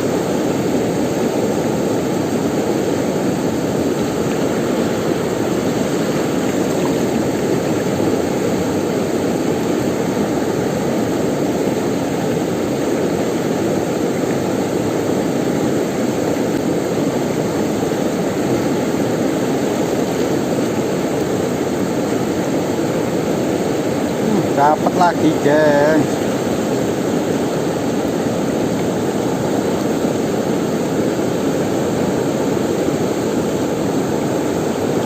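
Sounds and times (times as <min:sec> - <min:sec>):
rushing river water: 0:00.0 - 0:35.0.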